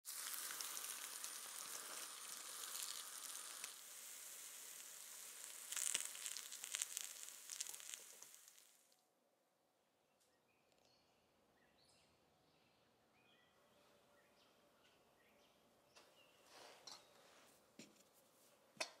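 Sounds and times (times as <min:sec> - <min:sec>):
batter sizzling in oil: 0:00.0 - 0:09.0
oil crackling: 0:00.0 - 0:09.0.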